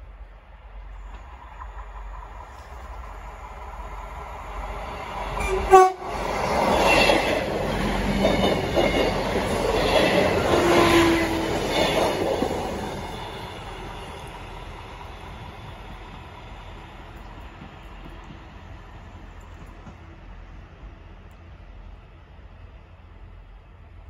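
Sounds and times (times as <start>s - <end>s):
train horn blast: 5.4s - 6.2s
train wheels clattering over rails: 6.2s - 20.3s.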